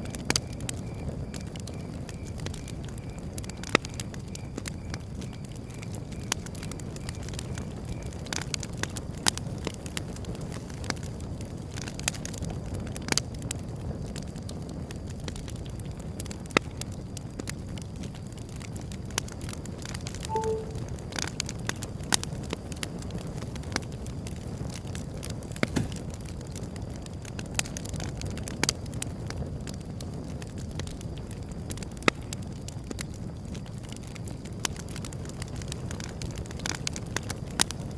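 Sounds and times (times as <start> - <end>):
wood fire crackling: 0.0 - 37.9.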